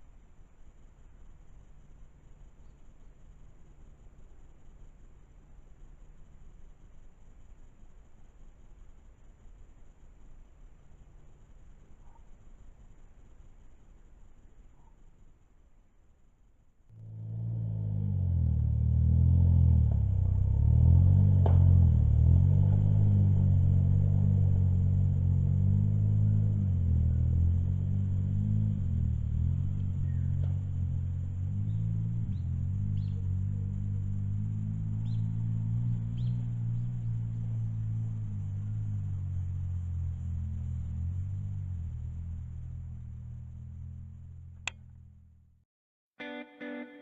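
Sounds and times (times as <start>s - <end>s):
car engine running deep: 16.9s - 45.6s
faint high chirps: 25.8s - 40.0s.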